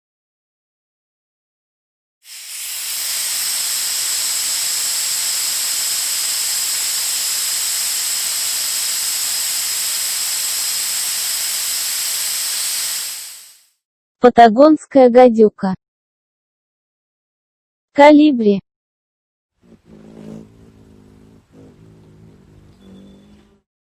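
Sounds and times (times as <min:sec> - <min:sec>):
snake hissing: 0:02.2 - 0:13.7, 0:19.6 - 0:23.6.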